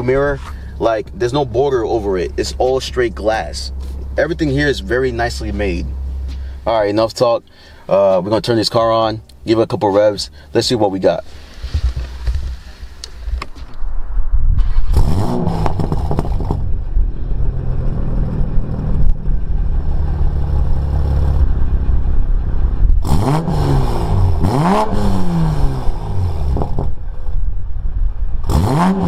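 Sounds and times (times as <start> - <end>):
car engine idling: 0.0 - 13.6, 15.6 - 24.4
car engine starting and revving: 14.5 - 27.4, 28.3 - 29.0.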